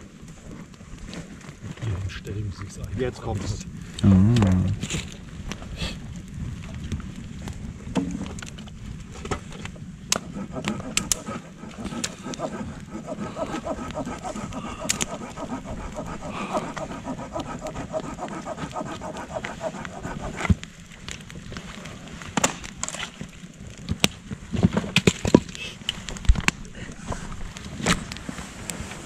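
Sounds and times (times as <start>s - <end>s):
campfire wood crackling: 0.0s - 29.0s
loud snaps of burning wood: 3.9s - 26.7s.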